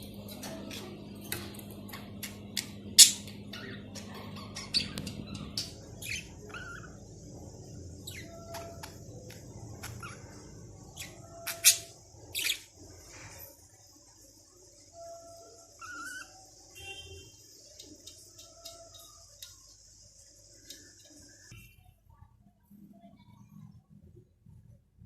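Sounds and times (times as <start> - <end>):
budgerigars chirping and squawking: 1.9 - 13.3, 15.7 - 16.5.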